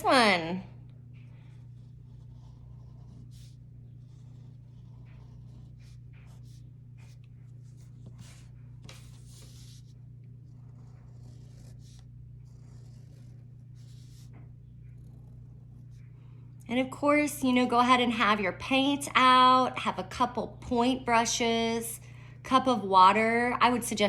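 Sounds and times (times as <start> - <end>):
marker scratching on paper: 0.0 - 16.2
steady low hum: 0.0 - 24.0.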